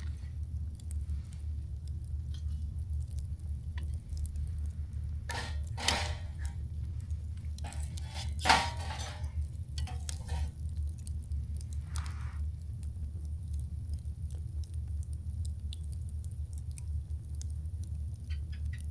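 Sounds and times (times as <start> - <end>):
campfire crackling: 0.0 - 18.9
rustling or clattering noises: 3.8 - 10.8.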